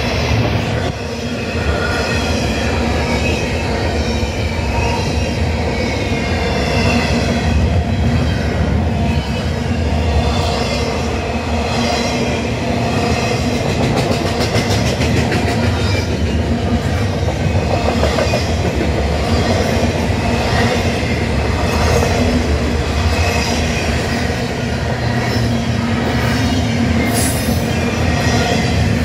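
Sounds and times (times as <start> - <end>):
freight train wheels clattering: 13.1 - 29.0.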